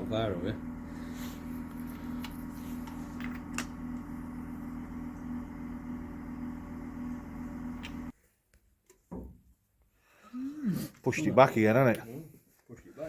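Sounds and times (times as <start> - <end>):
machine hum: 0.0 - 8.1.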